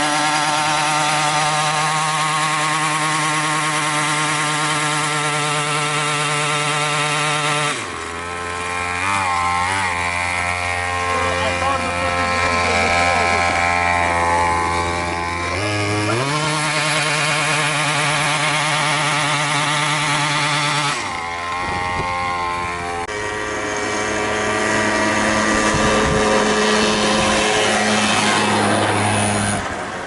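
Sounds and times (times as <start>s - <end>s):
mini motorbike engine running: 0.0s - 30.0s.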